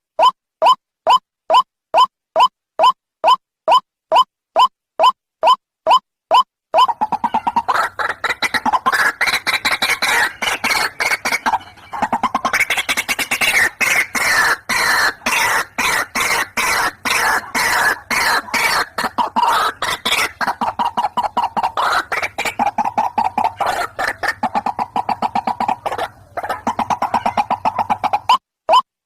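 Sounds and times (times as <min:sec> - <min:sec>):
waterhen calling harsh repeated notes: 0:00.2 - 0:28.9.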